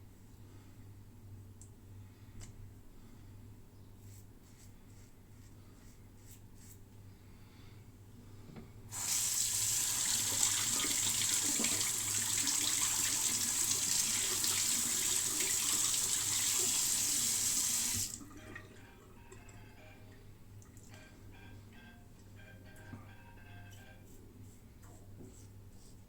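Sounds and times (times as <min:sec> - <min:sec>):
tap water running into sink: 0:09.0 - 0:18.4.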